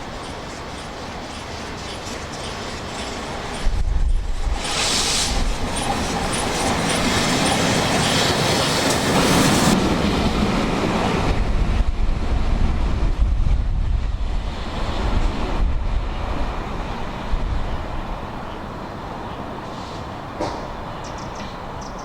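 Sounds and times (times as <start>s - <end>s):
train wheels clattering over rail joints: 0.0s - 9.8s
wind buffeting microphone: 0.9s - 18.7s.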